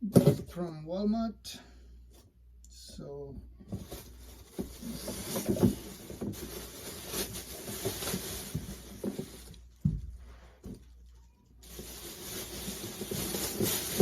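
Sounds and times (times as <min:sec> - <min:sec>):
cardboard and plastic packaging rustling: 0:03.7 - 0:14.0.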